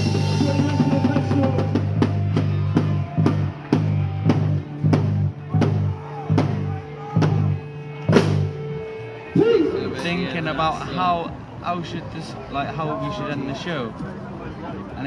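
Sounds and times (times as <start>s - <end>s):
bass line: 0.0s - 10.2s.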